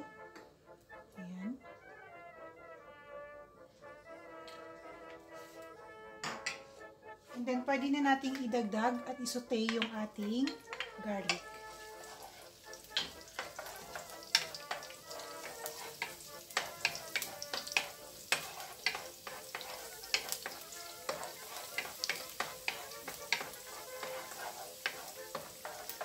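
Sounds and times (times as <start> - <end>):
wooden spatula scraping a wok: 4.6 - 26.0
garlic sizzling in hot oil: 8.0 - 26.0.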